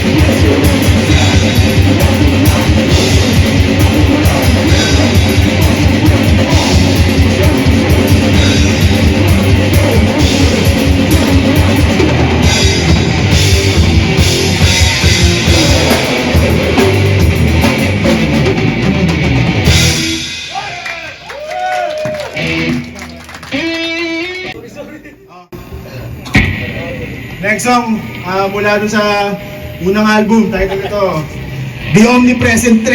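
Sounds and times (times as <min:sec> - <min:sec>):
distorted electric guitars riffing: 0:00.0 - 0:21.2, 0:22.2 - 0:24.6, 0:26.3 - 0:32.9
fast drum kit strokes: 0:00.0 - 0:23.9.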